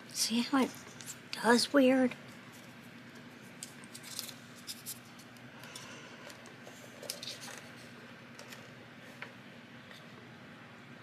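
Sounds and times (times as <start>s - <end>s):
faint steady hum: 0.0s - 11.0s
paper rustling and crinkling: 2.4s - 5.4s, 6.6s - 9.3s.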